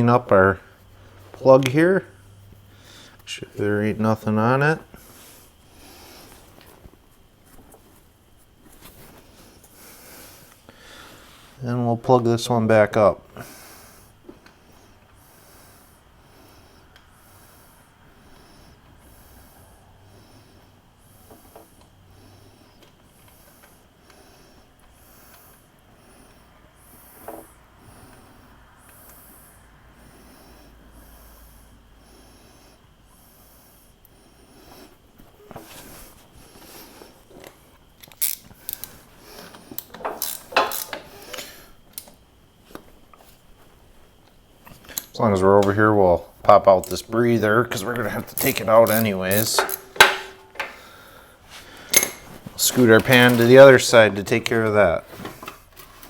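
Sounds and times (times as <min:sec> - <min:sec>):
faint handling noise: 0:00.0 - 0:10.7, 0:34.7 - 0:56.0
metal clicks and scrapes: 0:38.0 - 0:42.1, 0:47.7 - 0:50.8.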